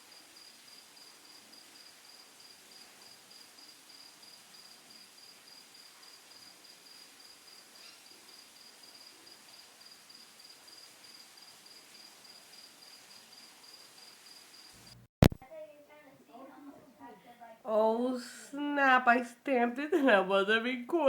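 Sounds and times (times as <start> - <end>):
cricket chirping: 0.0 - 15.0
low room hiss: 0.0 - 21.0.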